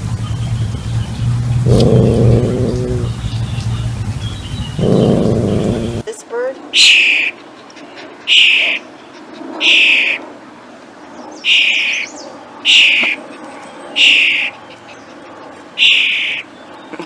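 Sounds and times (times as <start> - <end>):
bird screeching harshly: 6.8 - 7.4, 8.3 - 8.8, 9.6 - 10.2, 11.4 - 13.2, 14.0 - 14.6, 15.8 - 16.4.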